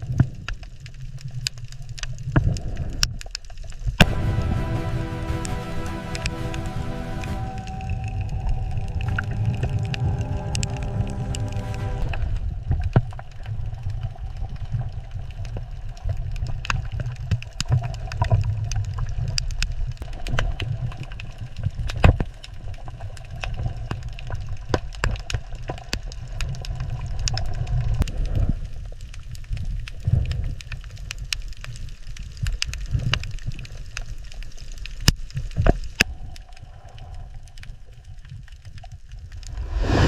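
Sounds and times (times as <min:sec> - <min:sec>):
sharp clicks and crackles: 0:00.0 - 0:04.1, 0:12.1 - 0:39.6
underwater rumbling wash: 0:04.0 - 0:28.8, 0:39.2 - 0:40.0.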